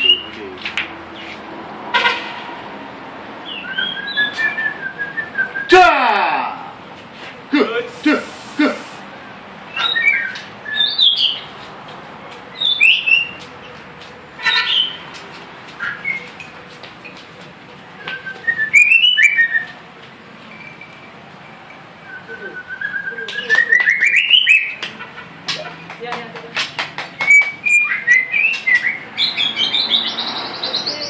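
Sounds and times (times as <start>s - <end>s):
songbird whistling: 3.4s - 5.7s, 9.7s - 11.5s, 12.6s - 13.4s, 15.8s - 16.4s, 18.0s - 19.8s, 20.5s - 24.8s, 27.2s - 31.0s.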